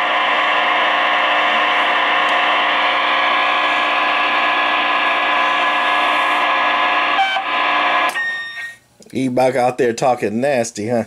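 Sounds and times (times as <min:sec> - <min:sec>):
radio static: 0:00.0 - 0:08.2
whining radio tones: 0:00.0 - 0:08.8
heterodyne whistles: 0:08.1 - 0:08.8.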